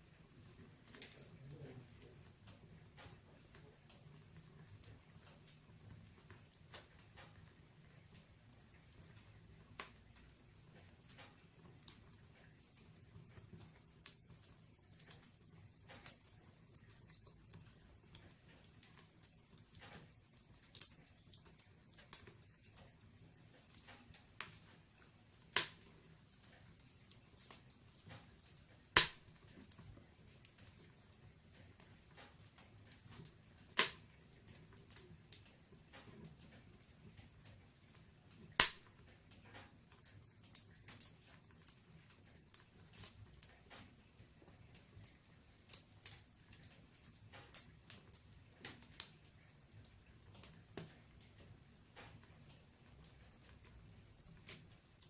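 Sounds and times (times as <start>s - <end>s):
firewood crackling: 0.0s - 55.0s
fire popping sharply: 28.9s - 29.7s, 33.7s - 34.1s, 38.5s - 39.0s.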